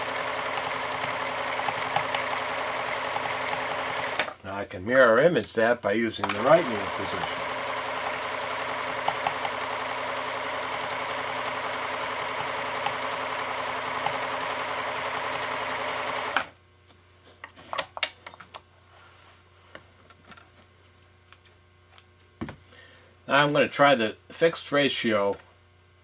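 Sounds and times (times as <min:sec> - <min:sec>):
sewing machine running: 0:00.0 - 0:04.4, 0:06.3 - 0:16.6.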